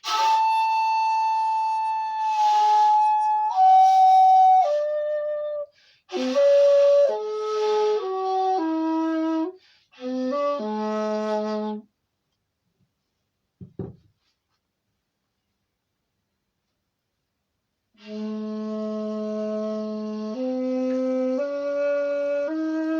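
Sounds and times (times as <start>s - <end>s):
bamboo flute playing: 0.0s - 11.9s, 18.0s - 22.9s
soft low knock: 13.6s - 14.1s.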